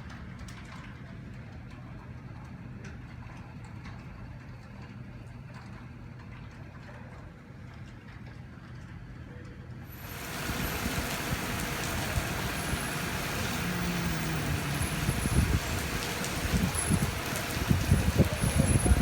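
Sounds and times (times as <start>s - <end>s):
rain hiss: 9.9s - 19.0s
wind gusts buffeting microphone: 10.0s - 19.0s.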